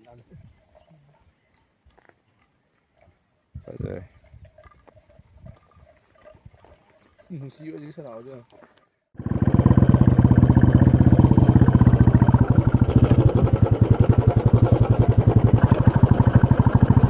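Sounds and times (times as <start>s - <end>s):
motorcycle engine running: 9.2s - 17.0s.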